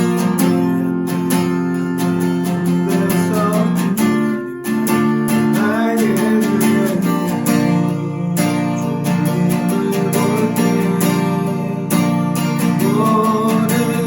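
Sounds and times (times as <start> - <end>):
strummed acoustic guitar: 0.0 - 14.0
faint singing: 5.5 - 14.0.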